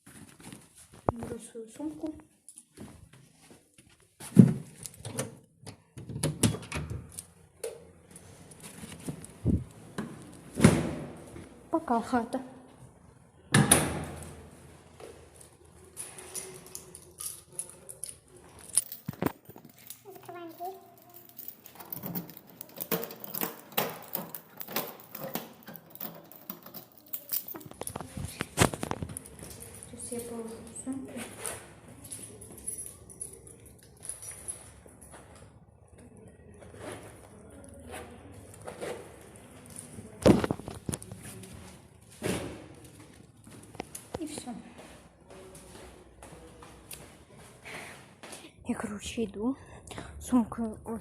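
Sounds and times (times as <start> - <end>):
key locking a door: 16.0 - 28.1
handling clicks and knocks: 16.1 - 29.9.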